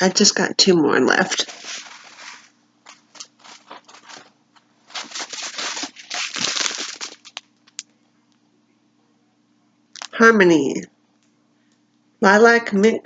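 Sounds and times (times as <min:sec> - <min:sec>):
packaging rustling and crinkling: 0:01.3 - 0:07.8.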